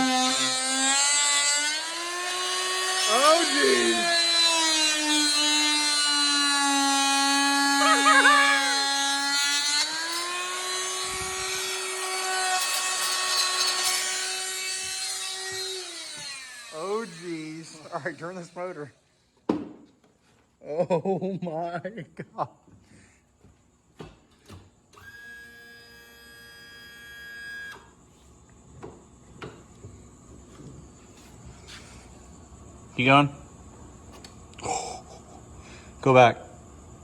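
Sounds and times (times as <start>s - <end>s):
power tool grinding with rasping: 0.0s - 18.8s.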